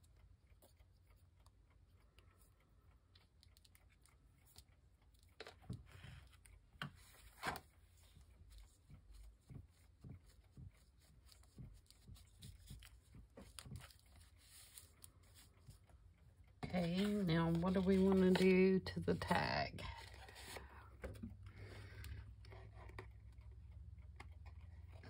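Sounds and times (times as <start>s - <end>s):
paper rustling: 7.0s - 15.9s, 16.6s - 21.4s.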